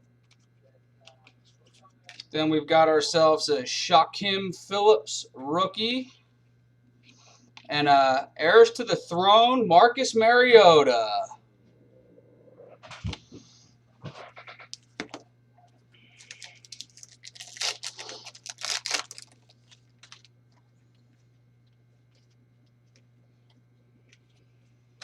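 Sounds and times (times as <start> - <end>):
faint steady hum: 0.0 - 25.0
trading cards and foil packs rustling: 0.2 - 2.4, 16.0 - 23.1.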